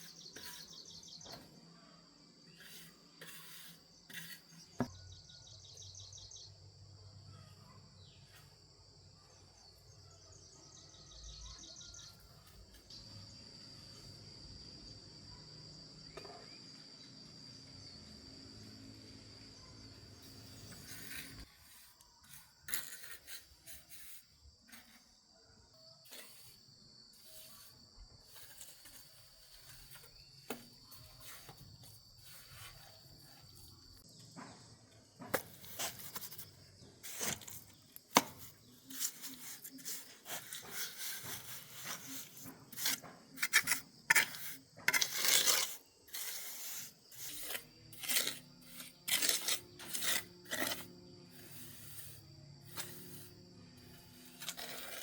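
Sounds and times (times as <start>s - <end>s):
hand tool scraping and rubbing: 0.0s - 1.4s, 2.5s - 4.9s, 20.2s - 25.2s, 26.0s - 34.0s, 35.2s - 55.0s
high insect drone: 0.0s - 22.7s, 45.4s - 55.0s.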